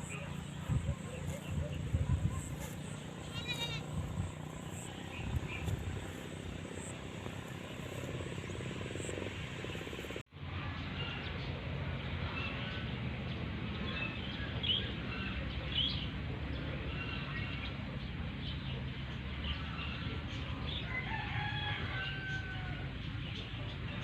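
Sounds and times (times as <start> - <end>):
steady low rumble: 0.0 - 17.0
rooster crowing: 20.8 - 22.8.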